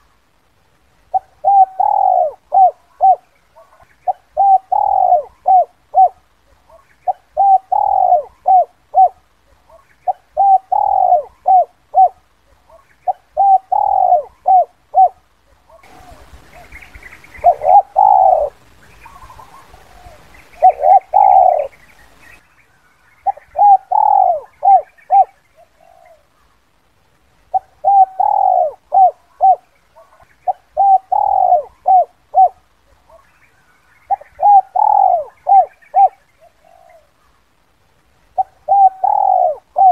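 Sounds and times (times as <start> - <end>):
faint hiss: 0.0 - 39.9
dove cooing: 1.1 - 22.2, 23.2 - 26.5, 27.5 - 33.4, 34.0 - 37.4, 38.3 - 39.9.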